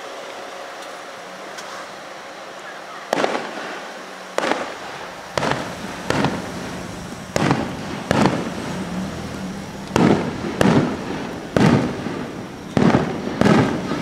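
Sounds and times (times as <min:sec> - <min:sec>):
firework shells bursting: 0:03.1 - 0:14.0.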